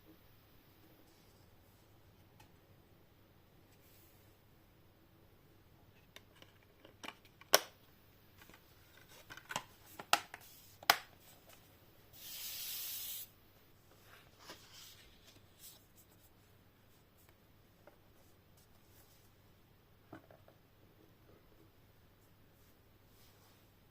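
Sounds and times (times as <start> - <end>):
packaging rubbing hiss: 12.2 - 13.4.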